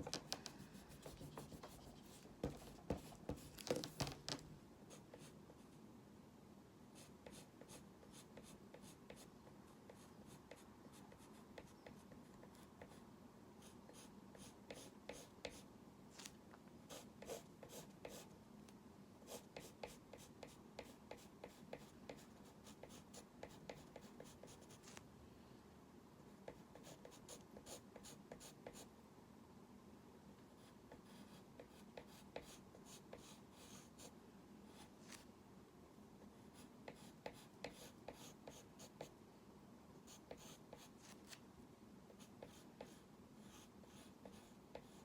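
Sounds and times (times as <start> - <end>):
pencil scratching on paper: 0.1 - 3.5, 13.6 - 15.6, 16.9 - 18.3, 19.3 - 25.0, 36.6 - 39.0, 40.1 - 41.2, 42.2 - 45.0.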